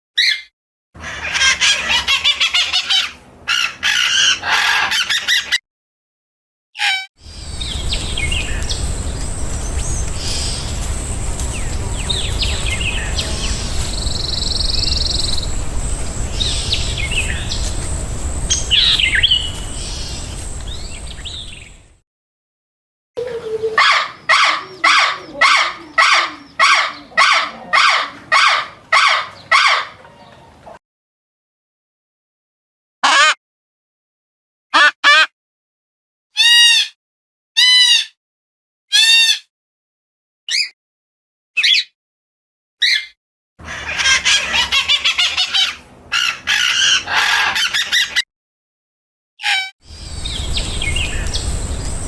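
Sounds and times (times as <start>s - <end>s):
low outdoor rumble: 7.2s - 22.0s, 49.9s - 52.0s
small birds chirping: 7.2s - 22.0s, 49.9s - 52.0s
loud repeating bird call: 43.6s - 48.2s.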